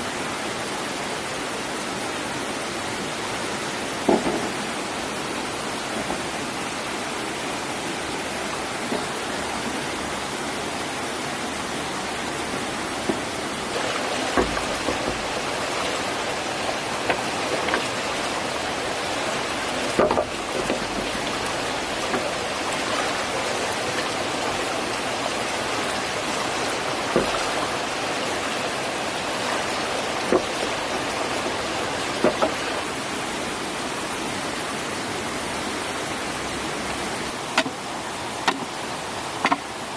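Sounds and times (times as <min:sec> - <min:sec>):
stream rushing: 0:00.0 - 0:39.9
sharp knocks: 0:13.1 - 0:16.3, 0:19.9 - 0:22.4, 0:32.2 - 0:32.7.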